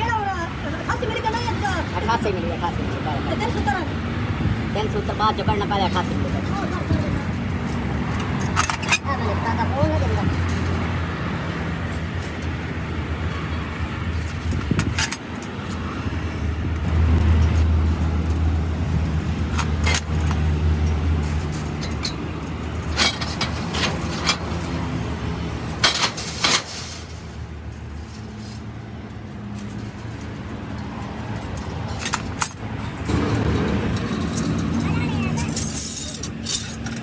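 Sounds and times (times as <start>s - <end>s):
metallic clinks: 16.8s - 37.0s.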